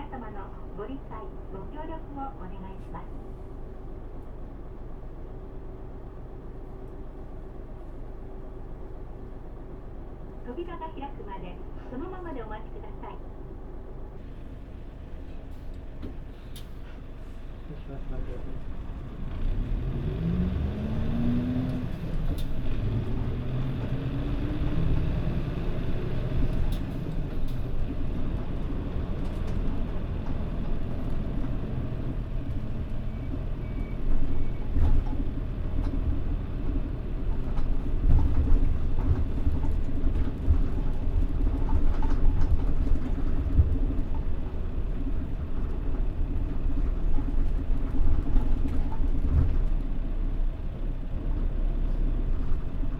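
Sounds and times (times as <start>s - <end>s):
road rumble: 0.0s - 52.9s
bus diesel engine revving: 18.2s - 41.0s.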